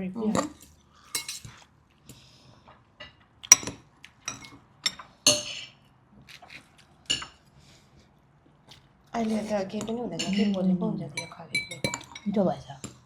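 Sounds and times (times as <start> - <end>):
utensils clinking on dishes: 0.4 - 1.6, 3.0 - 5.8, 7.1 - 7.4, 10.1 - 10.6, 11.2 - 13.0.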